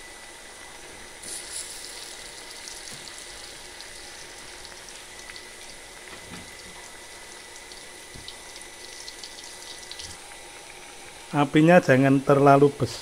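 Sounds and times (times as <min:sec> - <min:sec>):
food deep-frying in oil: 0:01.2 - 0:11.3.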